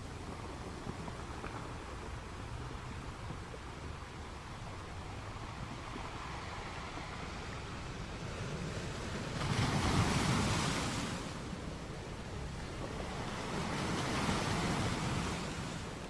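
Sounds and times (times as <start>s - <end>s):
surf rushing: 4.4s - 16.0s.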